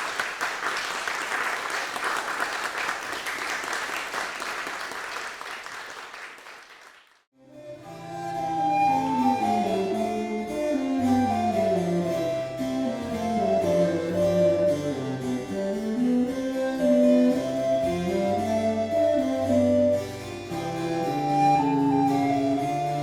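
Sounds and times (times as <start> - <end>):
recorder melody: 7.5 - 23.0
bassoon bass line: 7.6 - 23.0
harpsichord: 8.0 - 23.0.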